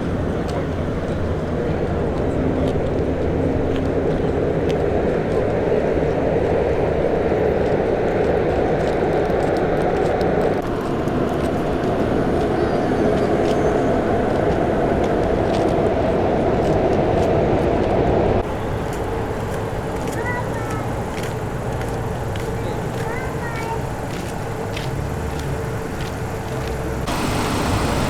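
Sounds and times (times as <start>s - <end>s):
car engines idling: 9.2s - 28.0s.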